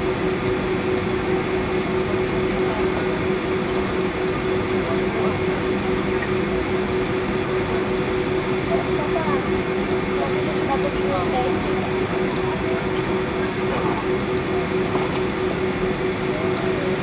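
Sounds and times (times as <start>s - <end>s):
airliner cabin hum and rumble: 0.0s - 17.0s.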